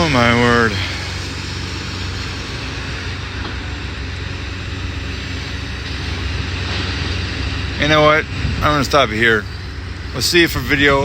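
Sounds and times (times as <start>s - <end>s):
demolition machine engine running: 0.0s - 11.0s
wind on microphone: 8.3s - 11.0s.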